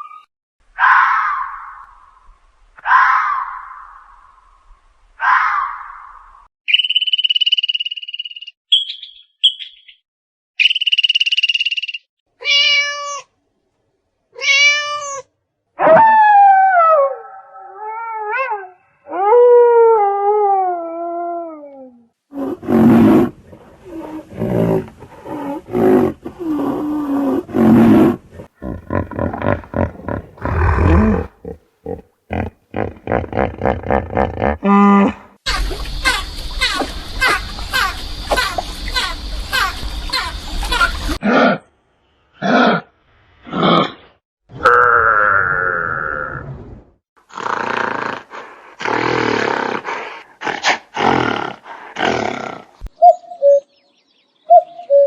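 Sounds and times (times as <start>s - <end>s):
meow-like cat cries: 12.4s - 13.3s, 14.4s - 15.3s
animal growling: 22.3s - 35.4s, 45.0s - 52.9s
fast pulsing growl: 28.6s - 34.2s.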